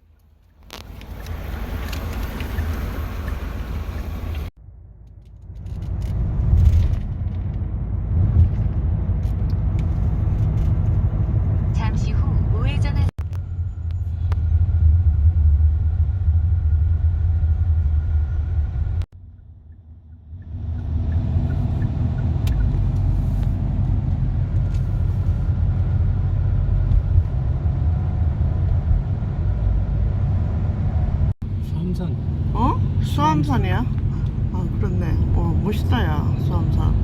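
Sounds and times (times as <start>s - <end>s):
road and engine noise in car: 0.0s - 37.0s.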